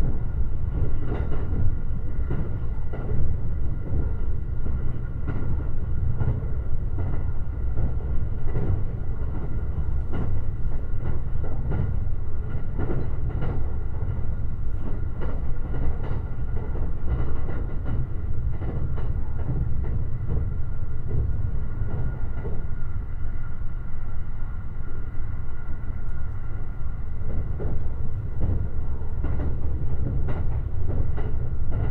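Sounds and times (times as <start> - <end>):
train wheels rumbling on rail: 0.0 - 31.9
track clicks and knocks: 27.2 - 31.9.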